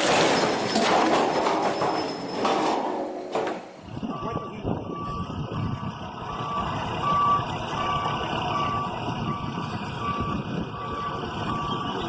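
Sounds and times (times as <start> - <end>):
diesel engine running: 2.6 - 12.0
reversing alarm beeping: 3.7 - 12.0.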